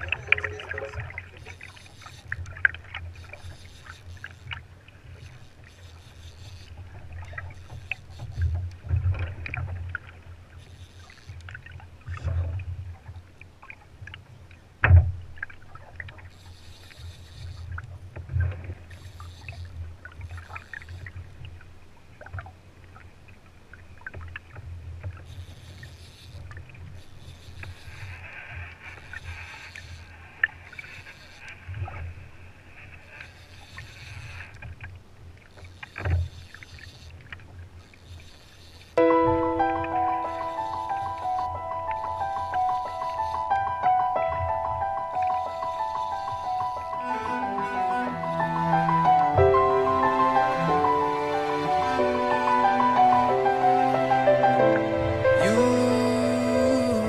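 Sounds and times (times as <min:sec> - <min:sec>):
water sloshing against kayak hull: 0:00.0 - 0:55.4.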